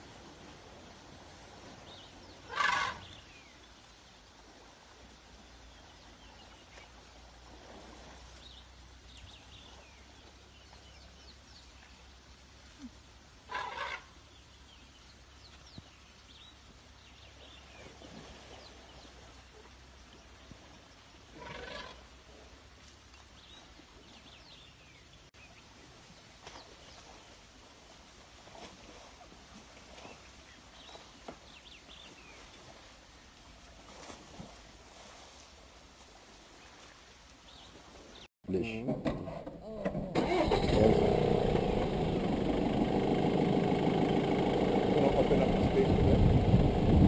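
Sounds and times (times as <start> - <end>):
bird harsh call: 2.5 - 3.2
steady low hum: 40.5 - 47.0.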